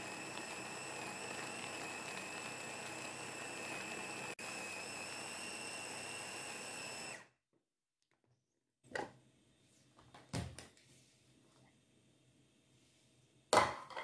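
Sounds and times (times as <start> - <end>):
electric blender whining: 0.0 - 7.4.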